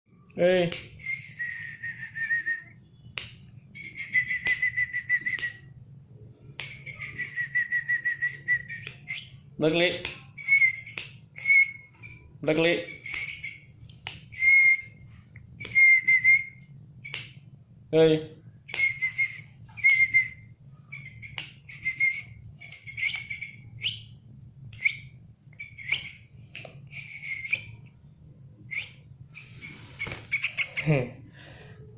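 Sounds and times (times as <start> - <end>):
bird whistled chirps: 1.0 - 5.8, 6.6 - 9.5, 10.4 - 13.7, 14.3 - 17.3, 18.7 - 24.2, 24.8 - 27.8, 28.7 - 30.8.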